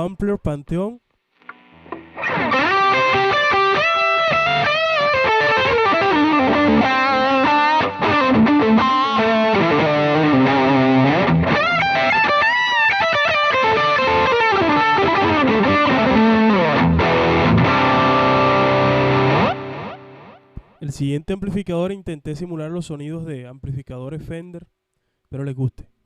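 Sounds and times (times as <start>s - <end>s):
overdriven electric guitar lead: 1.4s - 20.8s.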